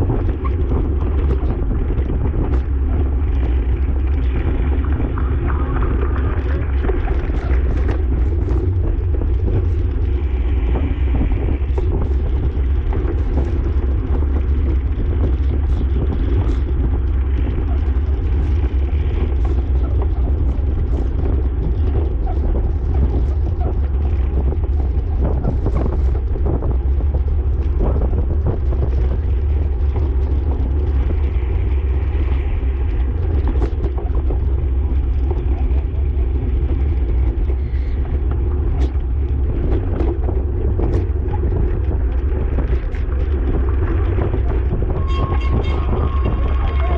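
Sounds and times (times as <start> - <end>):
road and tyre noise: 0.0 - 46.9
wind buffeting microphone: 0.0 - 46.9.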